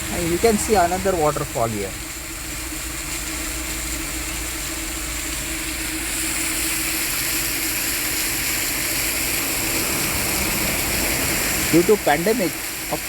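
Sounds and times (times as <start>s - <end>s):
rushing hiss: 5.8s - 13.0s
vehicle rumble on highway: 9.2s - 11.8s.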